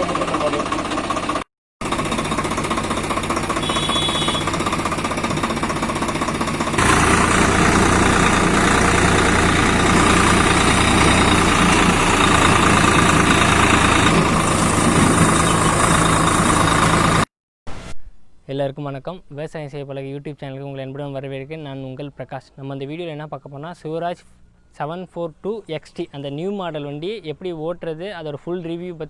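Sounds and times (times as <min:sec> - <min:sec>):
tractor diesel engine knocking: 0:00.0 - 0:17.3.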